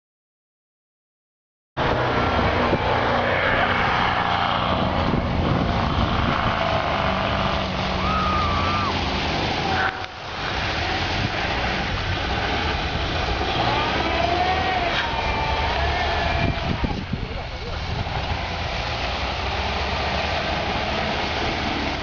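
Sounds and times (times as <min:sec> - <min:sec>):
car engine droning: 0:01.8 - 0:22.0
rushing noise through snow: 0:01.9 - 0:22.0.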